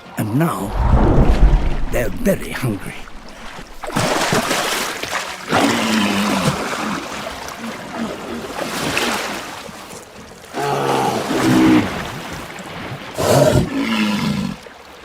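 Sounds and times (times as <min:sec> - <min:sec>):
surf: 0:00.6 - 0:05.2.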